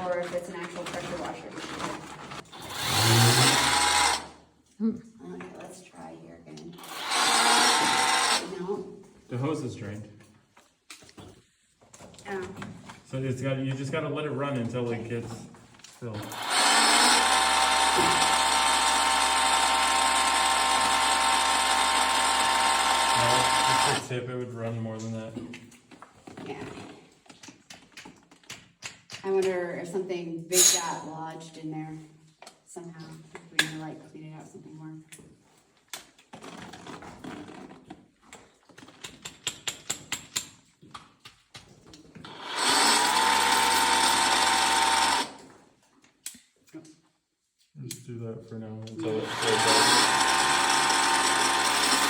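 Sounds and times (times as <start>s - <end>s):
pressure washer motor whine: 16.2s - 24.1s, 49.0s - 52.0s.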